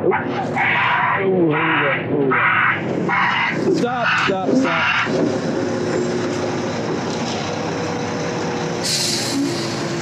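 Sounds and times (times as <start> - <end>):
concrete mixer truck running: 0.0 - 10.0
short hiss: 8.8 - 9.8.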